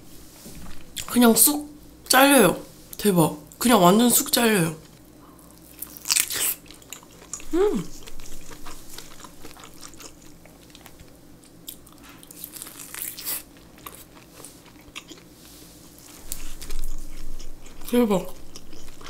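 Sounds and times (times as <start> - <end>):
person humming: 7.5 - 8.0.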